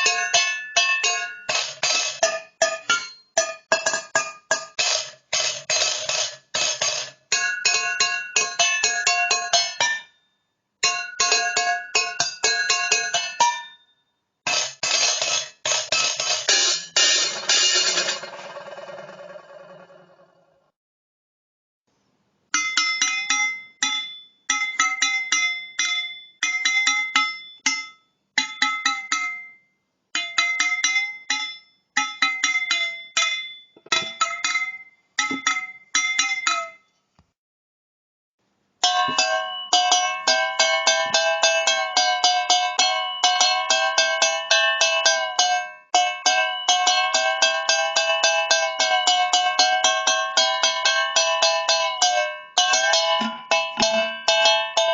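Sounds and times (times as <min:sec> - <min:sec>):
tin cans struck rapidly: 0:14.5 - 0:19.2.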